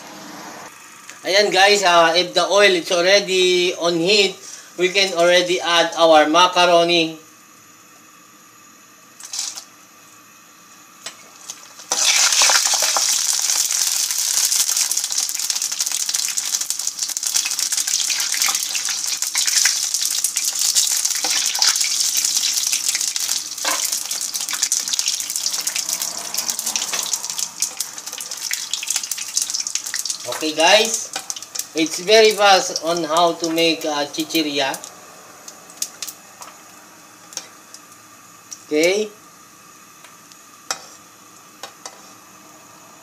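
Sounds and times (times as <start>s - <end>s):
pasta sizzling in hot oil: 7.4s - 34.8s.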